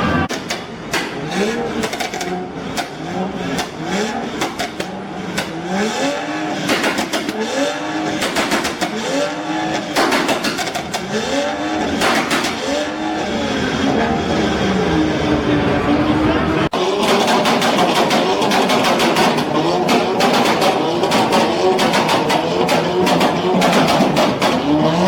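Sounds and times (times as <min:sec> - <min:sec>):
car engine revving: 0:00.0 - 0:25.0
exhaust pops and bangs: 0:00.3 - 0:03.8, 0:04.4 - 0:05.6, 0:06.7 - 0:07.4, 0:08.2 - 0:09.0, 0:09.8 - 0:11.1, 0:12.0 - 0:12.6, 0:17.0 - 0:24.9.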